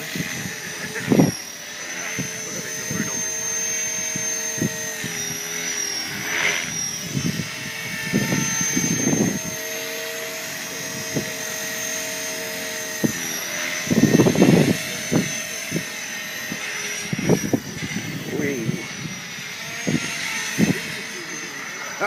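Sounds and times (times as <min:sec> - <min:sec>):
wind buffeting microphone: 0:00.0 - 0:01.4, 0:03.9 - 0:05.3, 0:06.9 - 0:09.9, 0:10.7 - 0:11.6, 0:12.9 - 0:21.2
rc helicopter motor and rotor whine: 0:00.0 - 0:22.0.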